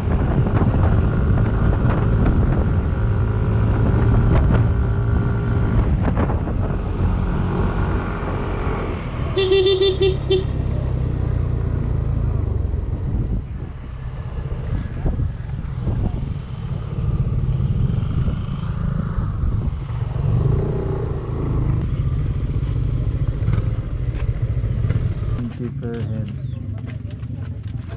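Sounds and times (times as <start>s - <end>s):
wind and road rumble: 0.0s - 27.9s
vehicle horn short beeps: 9.4s - 10.6s.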